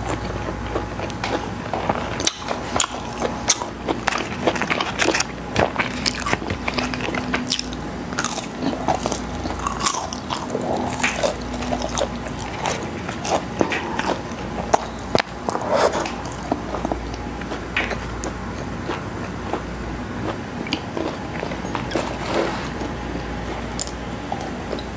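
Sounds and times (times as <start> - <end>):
crunchy chewing: 0.0 - 24.9.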